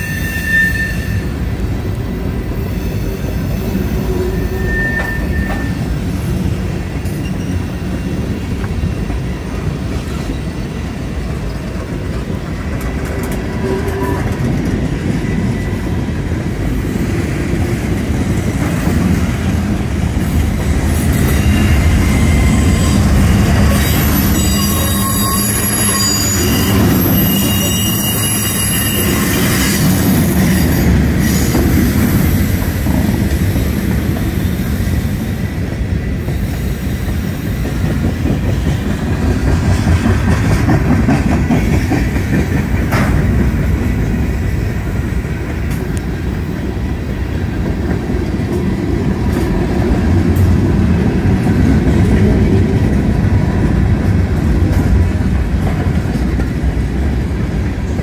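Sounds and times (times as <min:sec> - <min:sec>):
train wheels rumbling on rails: 0:00.0 - 0:58.0
wheels squealing: 0:02.7 - 0:05.9, 0:20.9 - 0:32.6.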